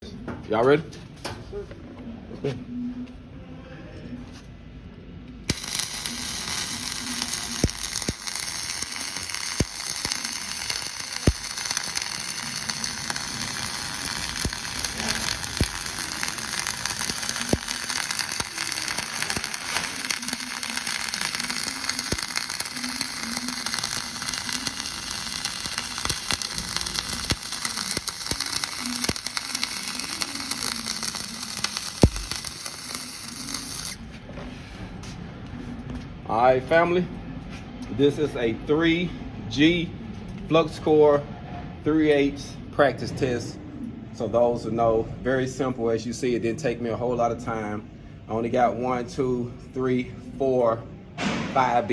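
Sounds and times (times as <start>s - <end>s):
welding spatter pops: 5.5s - 34.0s
welding arc crackling sizzle: 5.5s - 34.1s.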